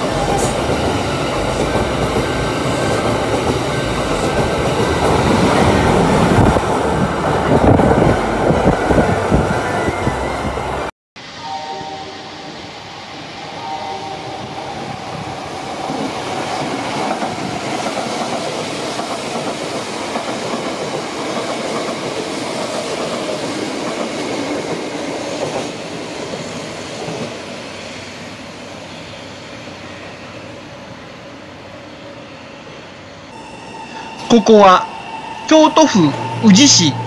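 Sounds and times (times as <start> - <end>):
train wheels clattering on rails: 14.8 - 27.5.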